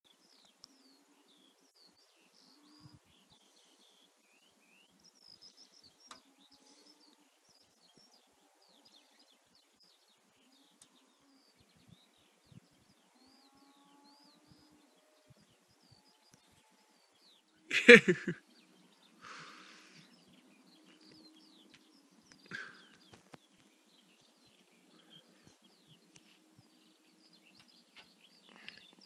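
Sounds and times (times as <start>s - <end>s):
faint bird chirping: 0.1s - 29.0s
soft ticks: 6.0s - 6.2s.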